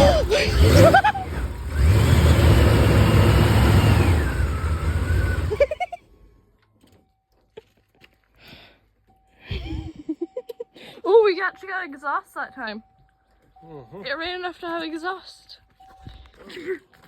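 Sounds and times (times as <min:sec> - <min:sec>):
truck engine starting and running: 0:00.0 - 0:06.4.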